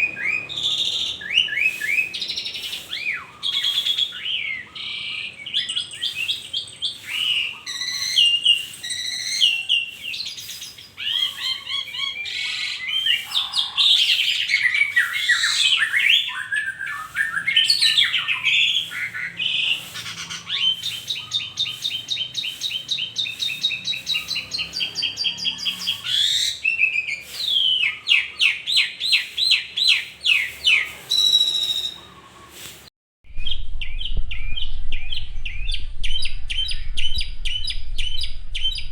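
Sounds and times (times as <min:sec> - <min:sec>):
starling singing: 0:00.0 - 0:32.6.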